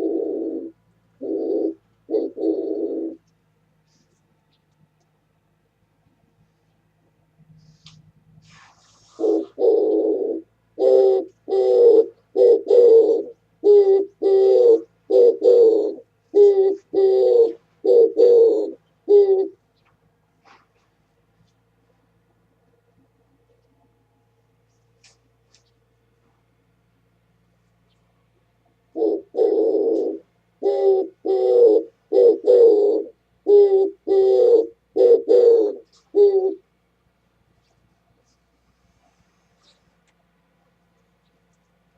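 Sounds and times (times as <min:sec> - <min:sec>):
dove cooing: 0:00.0 - 0:04.2, 0:09.1 - 0:20.9, 0:28.6 - 0:36.8.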